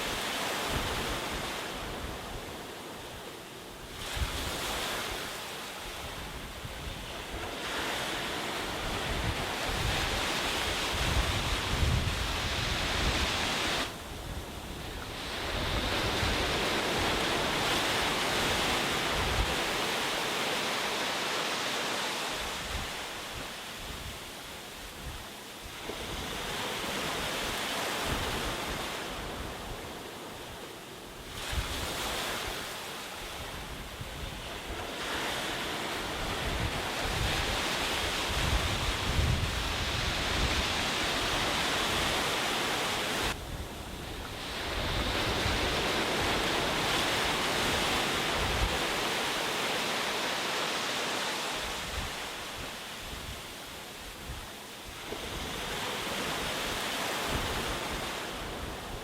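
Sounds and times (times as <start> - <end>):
sea waves breaking on beach: 0.0 - 59.0
wind buffeting microphone: 6.0 - 20.1, 33.3 - 49.4.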